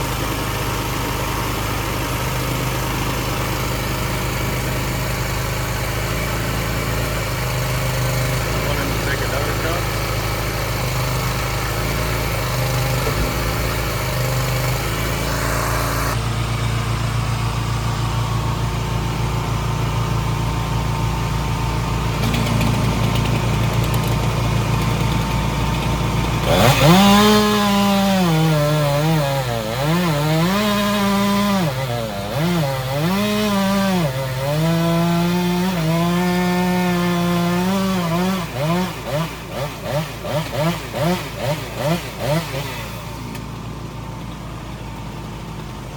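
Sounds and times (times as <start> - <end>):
machine engine running: 0.0 - 29.0
chainsaw cutting: 0.0 - 44.3.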